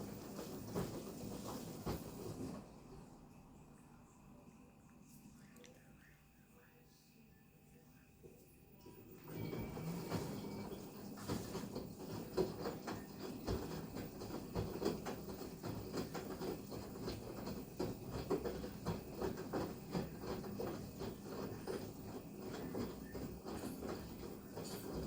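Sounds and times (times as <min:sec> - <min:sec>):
washer drum tumbling with soft thuds: 0:00.0 - 0:03.0, 0:09.0 - 0:25.0.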